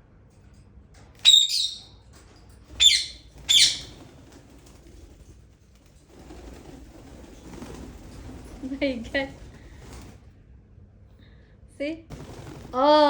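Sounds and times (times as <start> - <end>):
parakeet squawking: 1.2 - 1.8, 2.8 - 3.9.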